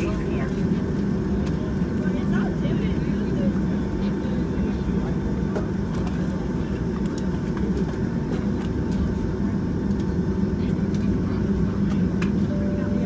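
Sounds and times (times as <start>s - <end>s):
low aircraft cabin rumble: 0.0s - 13.0s.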